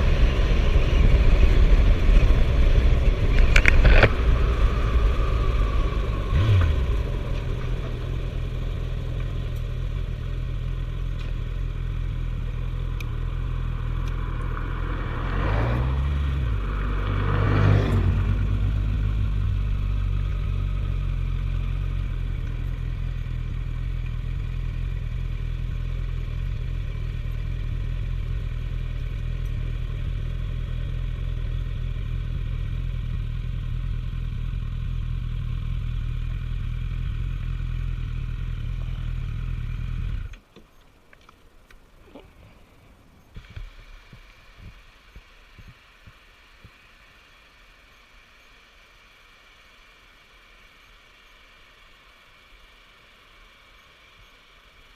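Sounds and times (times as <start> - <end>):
motorcycle engine running: 0.0 - 40.5.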